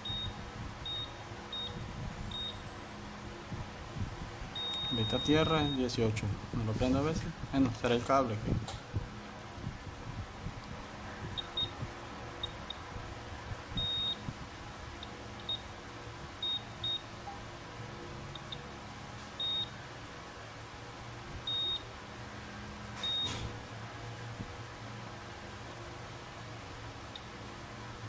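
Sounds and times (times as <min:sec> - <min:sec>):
multimeter beeping: 0:00.0 - 0:02.7, 0:04.6 - 0:06.0, 0:11.3 - 0:11.8, 0:13.8 - 0:14.3, 0:15.0 - 0:15.7, 0:16.4 - 0:17.4, 0:18.3 - 0:18.7, 0:19.4 - 0:19.8, 0:21.4 - 0:21.8, 0:23.0 - 0:23.4
steady low hum: 0:00.0 - 0:28.0.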